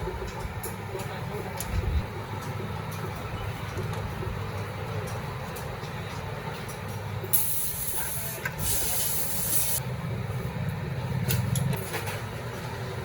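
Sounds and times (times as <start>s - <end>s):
low mechanical rumble: 0.0s - 13.0s
pressurised spray hissing: 7.3s - 9.8s.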